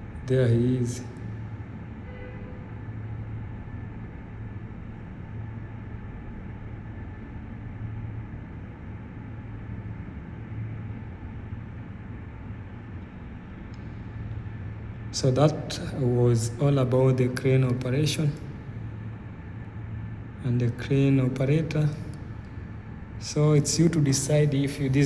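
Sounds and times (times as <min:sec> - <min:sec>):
crane engine droning: 0:10.4 - 0:25.0.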